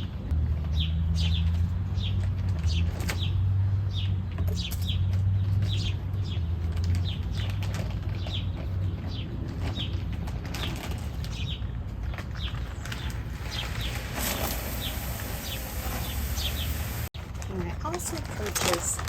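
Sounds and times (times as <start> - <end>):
rustling: 6.5 - 19.0
songbird chirping: 12.3 - 17.7.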